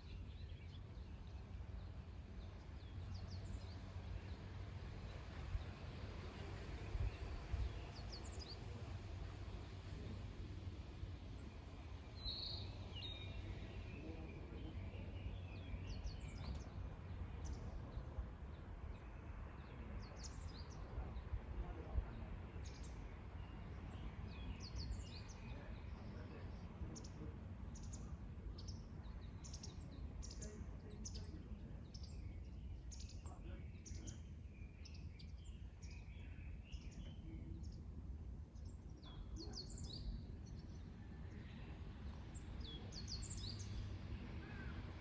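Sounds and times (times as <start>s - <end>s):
birds chirping and singing: 27.8s - 37.8s.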